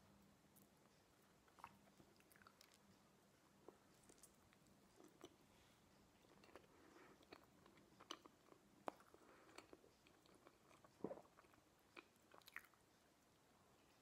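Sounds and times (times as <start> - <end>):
chewing with mouth clicks: 1.5 - 3.0, 6.2 - 12.8.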